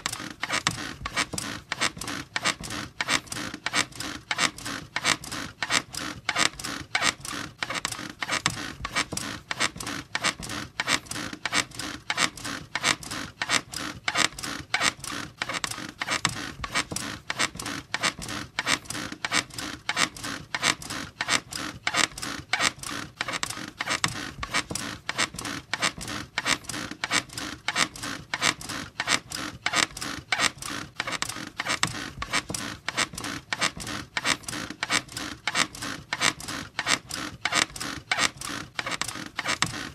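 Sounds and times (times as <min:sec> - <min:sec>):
bed squeaking rhythmically: 0:00.0 - 0:39.9.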